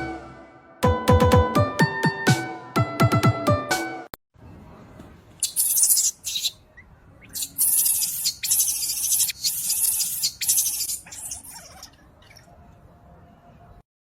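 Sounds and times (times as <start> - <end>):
macaque screaming: 5.4 - 6.6, 7.3 - 12.4.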